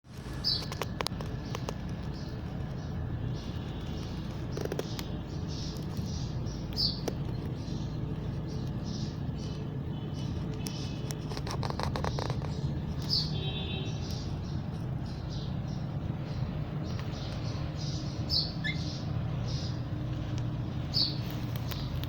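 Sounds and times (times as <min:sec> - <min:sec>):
steady low hum: 0:00.1 - 0:22.0
parrot chirping: 0:17.8 - 0:19.8.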